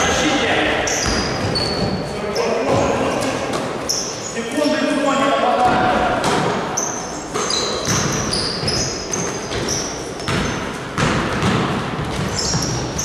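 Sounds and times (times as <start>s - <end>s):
sneakers squeaking on floor: 0.0s - 5.0s, 5.6s - 13.0s
basketball bouncing: 0.9s - 2.0s, 7.4s - 13.0s.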